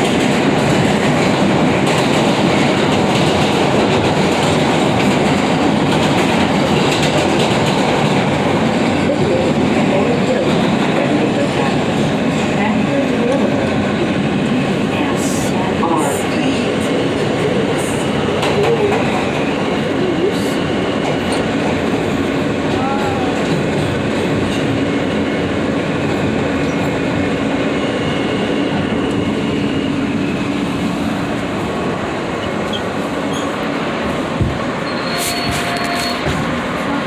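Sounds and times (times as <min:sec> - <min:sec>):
subway train rumble: 0:00.0 - 0:37.0
wheel-on-rail noise: 0:29.0 - 0:37.0.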